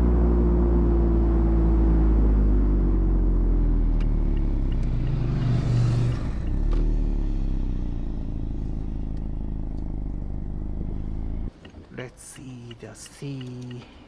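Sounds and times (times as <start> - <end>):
car engine running: 1.1 - 11.6.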